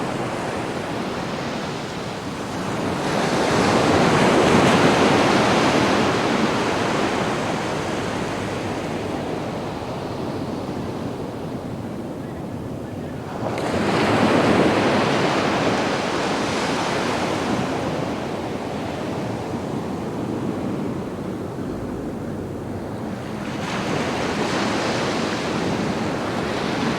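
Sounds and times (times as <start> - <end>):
sea waves breaking on sand: 13.3 - 26.9.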